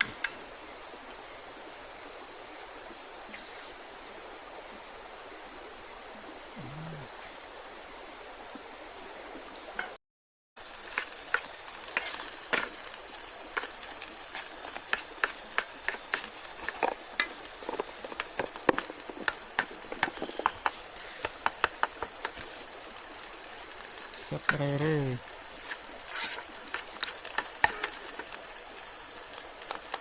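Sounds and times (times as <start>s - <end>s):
utensils clicking on cookware: 26.1s - 28.3s.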